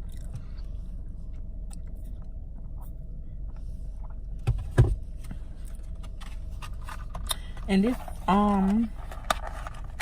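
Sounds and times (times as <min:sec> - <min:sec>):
person chewing food: 0:00.0 - 0:00.6
low hum: 0:00.0 - 0:10.0.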